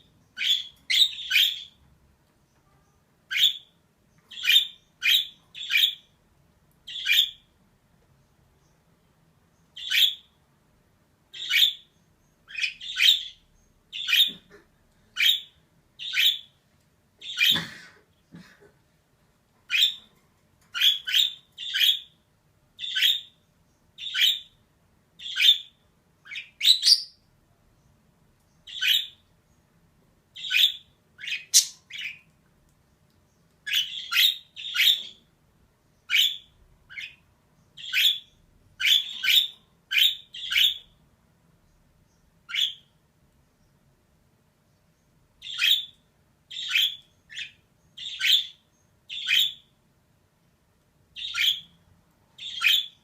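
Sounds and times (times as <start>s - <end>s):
budgerigar chirping: 0.4s - 1.8s, 3.3s - 3.7s, 4.3s - 6.1s, 6.9s - 7.5s, 9.7s - 10.3s, 11.3s - 11.9s, 12.5s - 14.4s, 15.2s - 16.6s, 19.7s - 20.1s, 20.7s - 22.2s, 22.8s - 23.4s, 24.0s - 24.6s, 25.2s - 27.2s, 28.7s - 29.2s, 30.4s - 32.3s, 33.7s - 35.2s, 36.1s - 37.2s, 37.8s - 41.0s, 42.5s - 42.9s, 45.4s - 49.7s, 51.2s - 51.8s, 52.4s - 53.0s.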